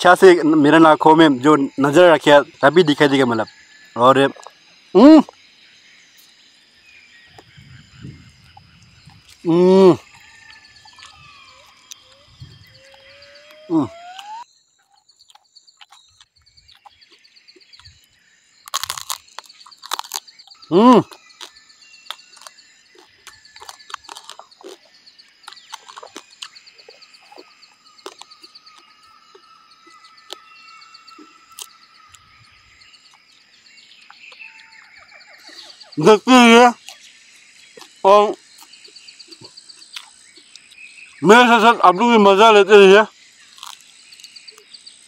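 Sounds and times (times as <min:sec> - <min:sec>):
insects trilling: 0:00.0 - 0:45.0
chewing and crunching meat: 0:08.4 - 0:13.2, 0:14.2 - 0:32.3, 0:37.7 - 0:40.8, 0:43.4 - 0:44.7.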